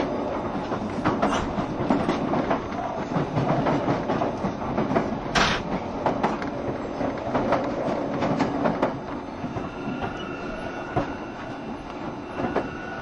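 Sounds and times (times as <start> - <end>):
wheels clicking over rail joints: 0.0 - 10.2
train wheels rumbling on rail: 0.0 - 13.0.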